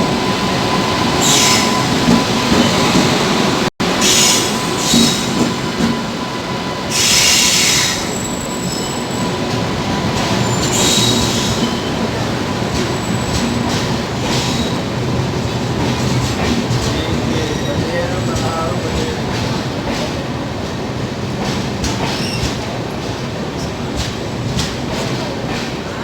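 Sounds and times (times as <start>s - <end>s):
train wheels rumbling on rails: 0.0s - 26.0s
wheels squealing: 0.4s - 15.0s.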